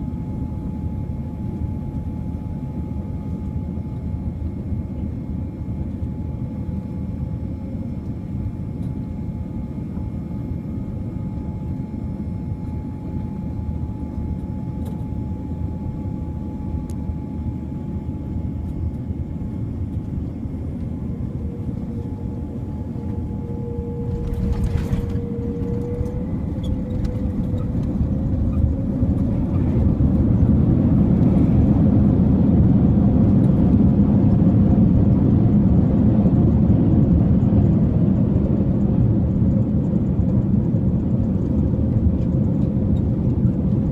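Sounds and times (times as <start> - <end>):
faint steady tones: 0.0 - 31.8
low rumble: 19.4 - 43.4
airliner cabin rush: 19.8 - 34.6.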